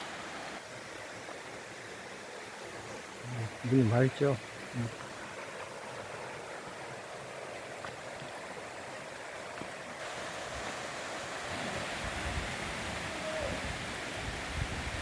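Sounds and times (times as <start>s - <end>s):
stream rushing over rocks: 0.0s - 15.0s
wind rumbling on microphone: 10.0s - 15.0s.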